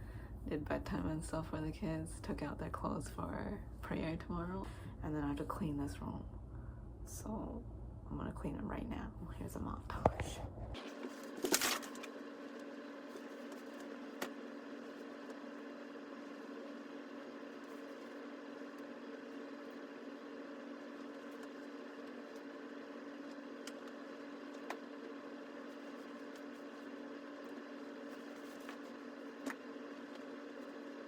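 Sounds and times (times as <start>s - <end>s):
machine hum: 6.2s - 31.0s.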